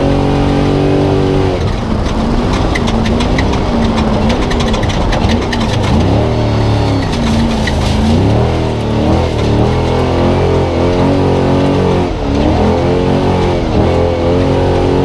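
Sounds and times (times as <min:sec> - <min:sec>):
race truck engine revving: 0:00.0 - 0:15.0
clattering knocks and rattles: 0:01.5 - 0:11.0.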